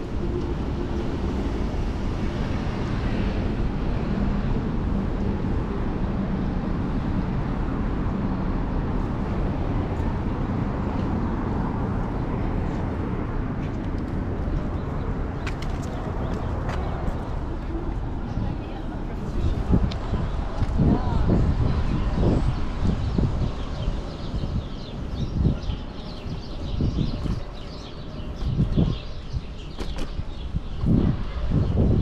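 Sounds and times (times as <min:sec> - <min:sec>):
road noise: 0:00.0 - 0:32.0.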